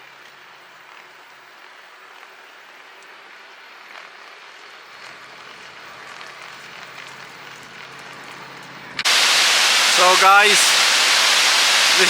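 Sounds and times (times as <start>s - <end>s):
waterfall rushing: 9.0s - 12.0s.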